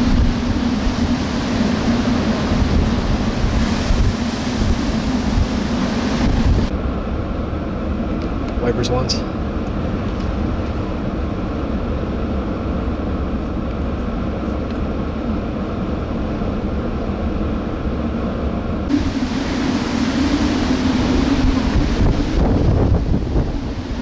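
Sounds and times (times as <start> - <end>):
crashing surf: 0.0 - 6.7, 18.9 - 24.0
wind rushing on microphone: 0.0 - 24.0.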